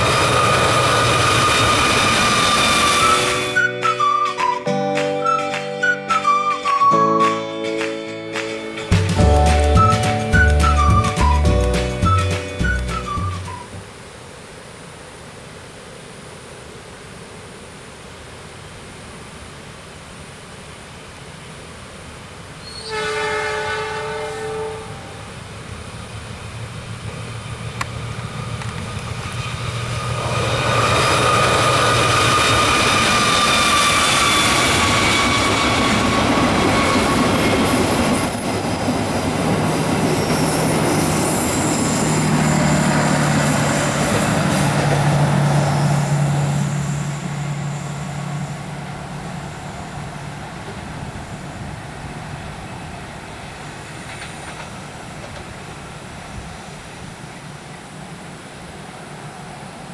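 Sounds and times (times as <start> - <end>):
train wheels rumbling on steel bridge: 0.0 - 3.7, 22.6 - 59.9
locomotive engine hum: 0.0 - 4.6, 8.5 - 14.1, 23.4 - 59.9
train horn blast: 22.6 - 25.3.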